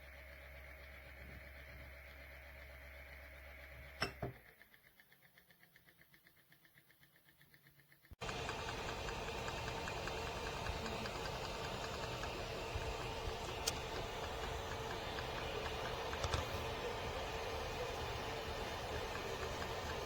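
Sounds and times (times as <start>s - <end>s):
blower fan whirring: 8.2s - 20.0s.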